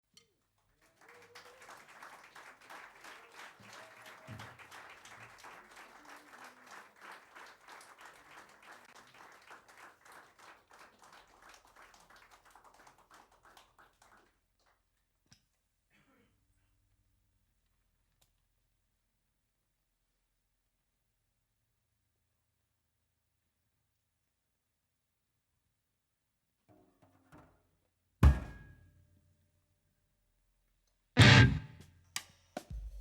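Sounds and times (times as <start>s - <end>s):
audience clapping: 0.5s - 15.0s.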